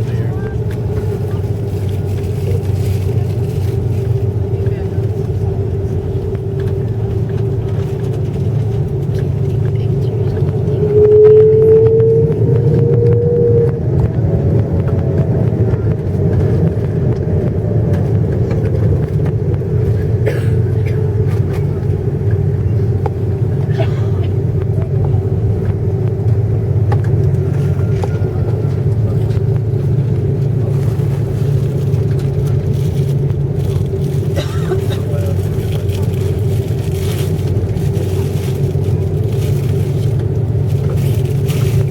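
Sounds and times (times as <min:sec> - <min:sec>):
airliner engine drone in cabin: 0:00.0 - 0:41.9
brief rising tone: 0:10.8 - 0:14.1.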